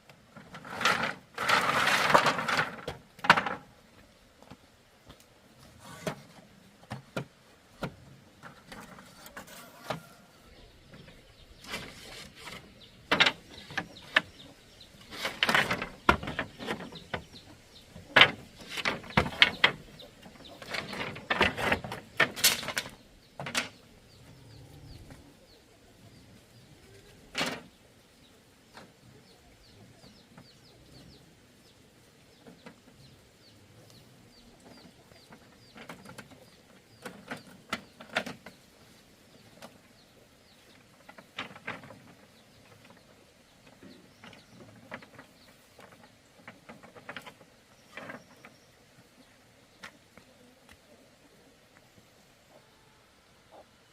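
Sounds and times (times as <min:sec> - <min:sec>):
hard objects knocking and clattering: 0:12.5 - 0:14.4, 0:15.0 - 0:23.8.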